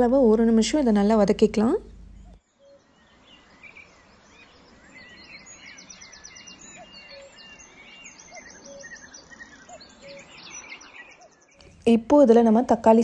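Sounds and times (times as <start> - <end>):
birds chirping and trilling: 0.0 - 13.0
faint background hiss: 0.0 - 13.0.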